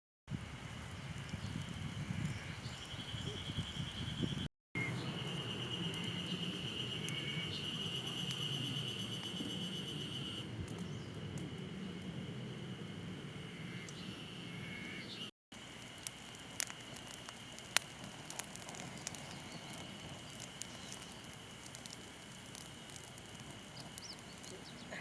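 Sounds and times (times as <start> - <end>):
insects shrilling: 15.7 - 25.0.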